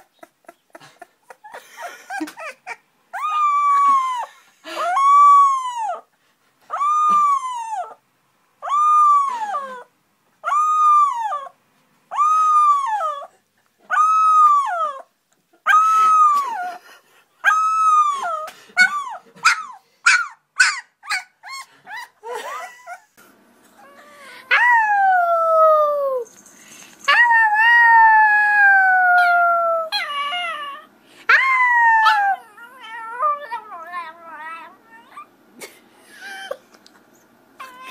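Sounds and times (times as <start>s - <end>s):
puppy howling and yipping: 2.4s - 6.1s, 6.7s - 8.0s, 8.6s - 13.3s, 13.9s - 16.6s, 17.4s - 22.2s, 23.8s - 26.3s, 27.1s - 35.3s, 37.6s - 37.9s
dog long descending howl: 23.8s - 26.3s, 27.1s - 35.2s.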